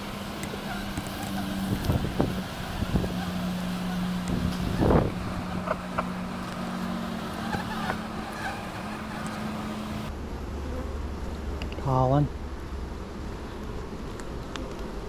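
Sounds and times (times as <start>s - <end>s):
honeybees buzzing: 0.0s - 10.1s.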